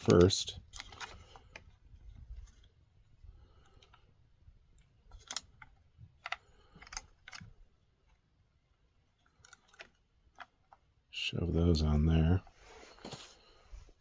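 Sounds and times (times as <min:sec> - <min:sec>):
small plastic parts clicking: 0:00.0 - 0:02.8, 0:03.4 - 0:11.0.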